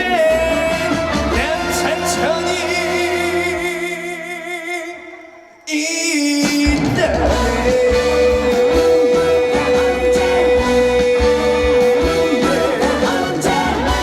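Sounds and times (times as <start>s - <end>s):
band accompaniment: 0.0s - 4.3s, 6.4s - 14.0s
guitar: 0.0s - 5.6s, 6.4s - 14.0s
steady beat: 6.5s - 14.0s.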